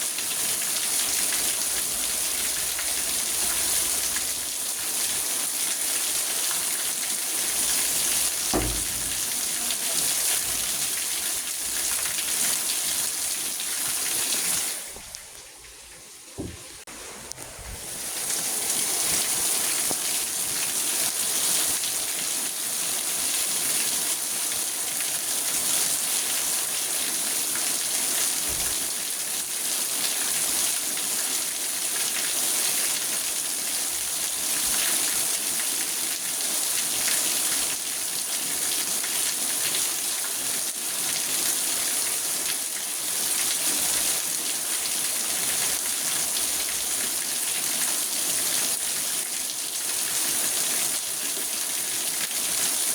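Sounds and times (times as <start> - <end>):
rain on car roof: 6.7 - 15.4, 16.4 - 20.4, 28.4 - 29.1.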